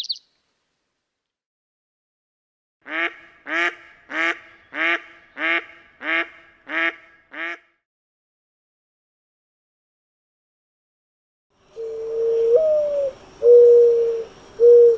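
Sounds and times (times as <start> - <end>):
bird harsh calls: 0.0 - 0.2.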